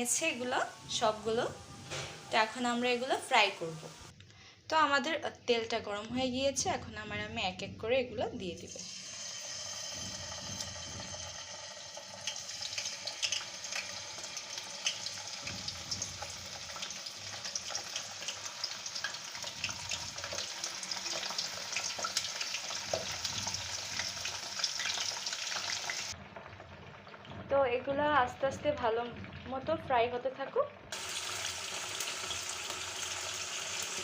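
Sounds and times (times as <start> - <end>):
food sizzling in a frying pan: 0.0 - 4.1, 8.7 - 27.9, 30.9 - 34.0.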